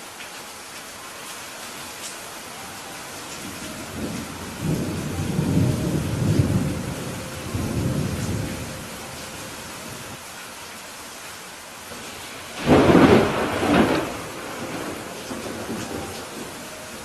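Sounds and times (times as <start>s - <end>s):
steady rain: 0.0s - 17.0s
thunder rumble: 3.4s - 10.2s, 12.0s - 17.0s.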